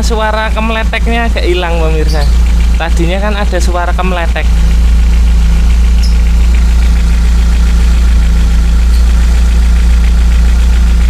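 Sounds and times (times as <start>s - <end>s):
car engine idling with exhaust leak: 0.0s - 11.0s.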